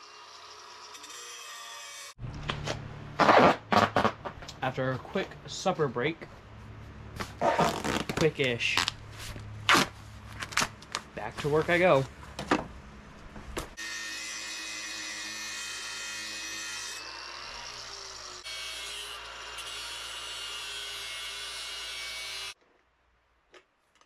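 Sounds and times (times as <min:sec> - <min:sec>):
electric grinder grinding steel: 0:00.0 - 0:02.2, 0:13.8 - 0:22.6.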